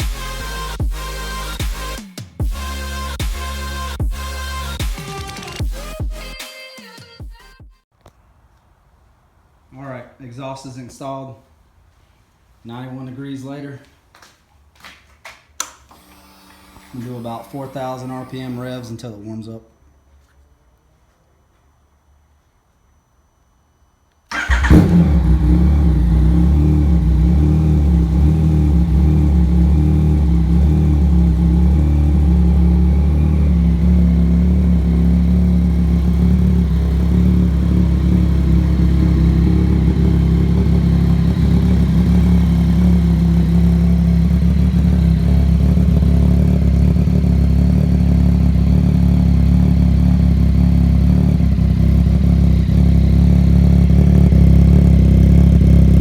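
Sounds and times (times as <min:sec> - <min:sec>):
motorcycle engine idling: 0:24.3 - 0:56.0.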